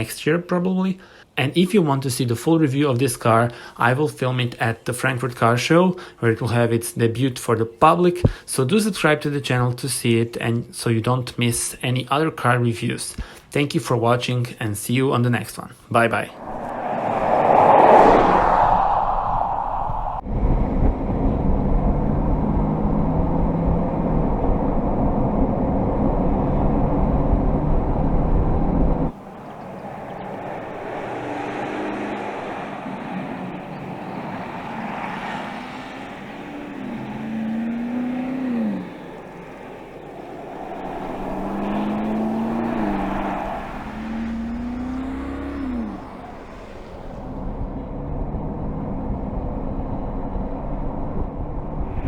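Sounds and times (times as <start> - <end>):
quiet engine sound: 21.0 - 52.0.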